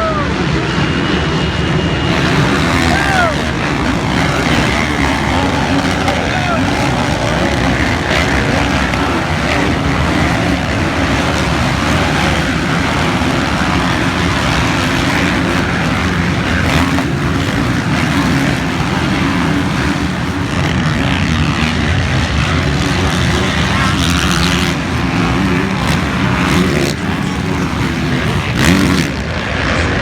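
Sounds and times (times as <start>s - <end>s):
motorcycle engine: 1.8s - 30.0s.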